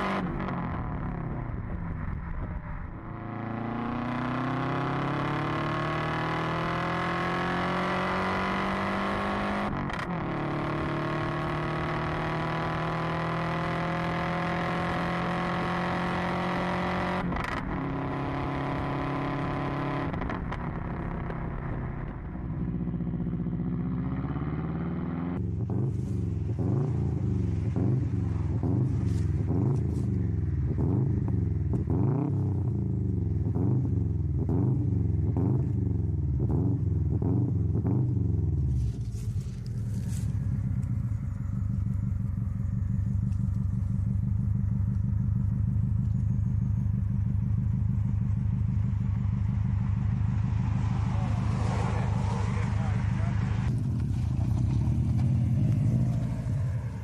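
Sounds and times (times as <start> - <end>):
car engine accelerating: 0.0 - 57.0
car engine revving: 0.0 - 57.0.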